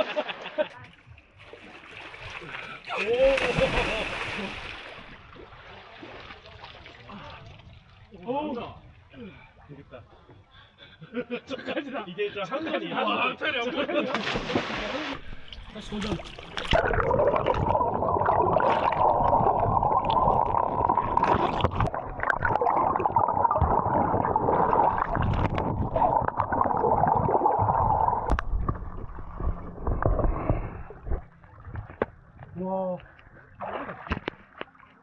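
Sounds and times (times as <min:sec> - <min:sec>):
stream water sloshing and gurgling: 0:00.8 - 0:10.3, 0:14.2 - 0:35.0
water knocks and splashes: 0:00.9 - 0:07.9, 0:14.1 - 0:17.7, 0:21.0 - 0:22.6, 0:24.9 - 0:26.6, 0:27.2 - 0:32.5, 0:33.6 - 0:34.7.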